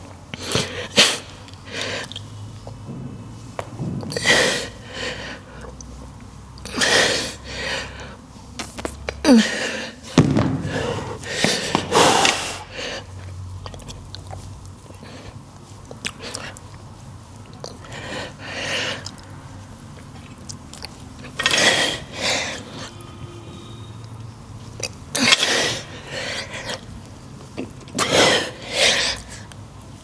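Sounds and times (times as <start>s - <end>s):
man breathing heavily: 9.3s - 13.2s.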